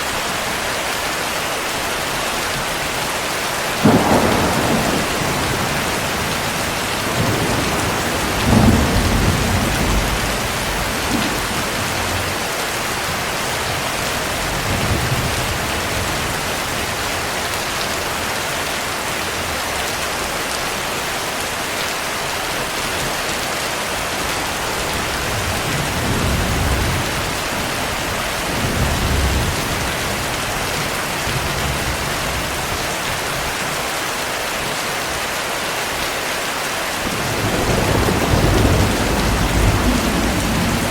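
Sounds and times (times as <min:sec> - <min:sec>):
heavy rain: 0:00.0 - 0:40.9
distant thunder rumbling: 0:03.8 - 0:17.5, 0:37.0 - 0:40.9.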